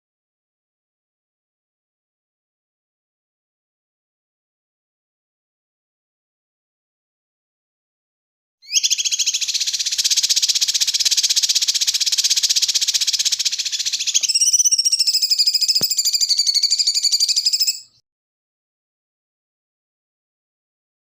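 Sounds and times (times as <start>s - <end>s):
high pulsing bird trill: 8.6s - 18.0s.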